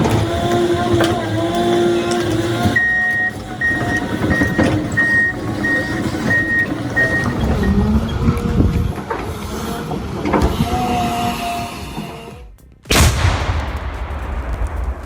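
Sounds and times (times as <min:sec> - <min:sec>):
heavy machine engine running: 0:00.0 - 0:12.6
reversing alarm beeping: 0:02.1 - 0:08.2.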